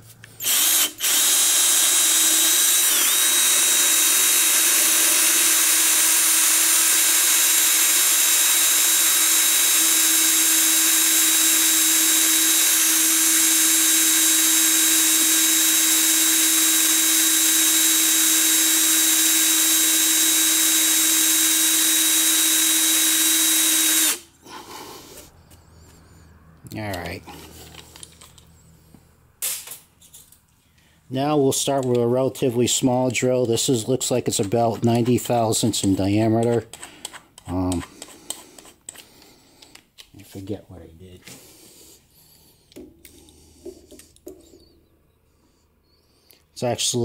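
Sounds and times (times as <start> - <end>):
power drill drilling metal: 0.4 - 24.3.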